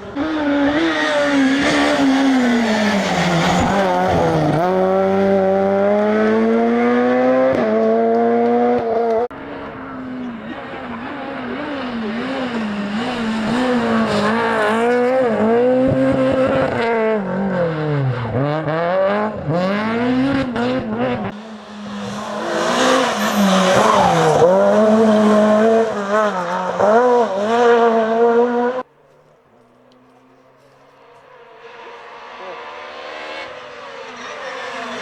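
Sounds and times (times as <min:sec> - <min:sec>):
rally car engine revving: 0:00.0 - 0:28.9, 0:29.6 - 0:35.0.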